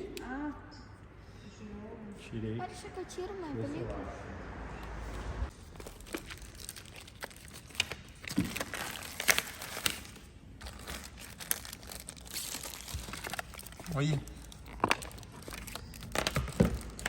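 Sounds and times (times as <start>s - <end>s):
plastic film crinkling: 5.5s - 17.0s
sharp snaps of plastic film: 6.0s - 10.3s.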